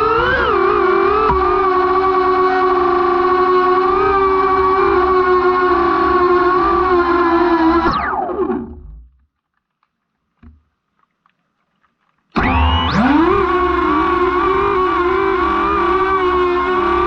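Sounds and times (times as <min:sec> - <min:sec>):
drone motors whining: 0:00.0 - 0:09.0, 0:12.4 - 0:17.0.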